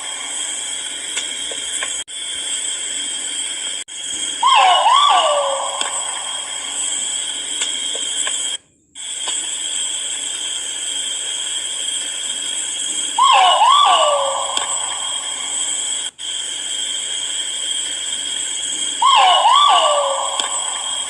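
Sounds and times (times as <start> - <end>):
steady high whine: 0.0 - 21.0
pheasant call: 4.4 - 7.0, 13.2 - 15.8, 19.0 - 21.0.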